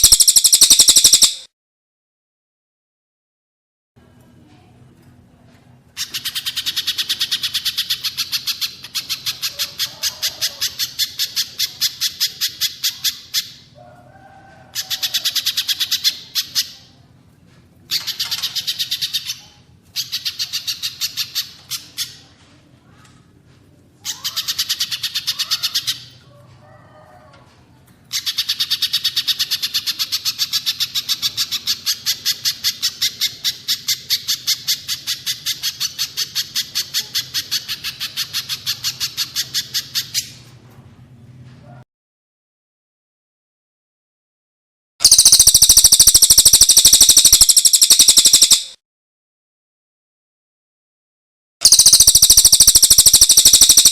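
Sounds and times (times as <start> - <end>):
rapid sharp high bird calls: 0.0 - 1.5, 45.0 - 48.8, 51.6 - 53.9.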